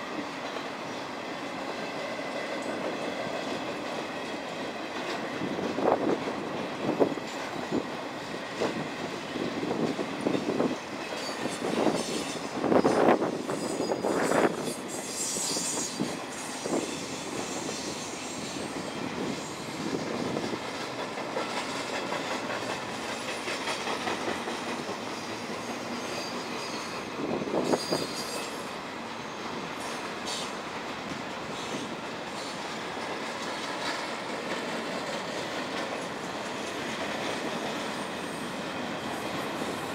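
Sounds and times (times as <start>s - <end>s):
high wheel squeal: 10.3s - 20.5s, 25.1s - 30.7s, 31.4s - 32.7s.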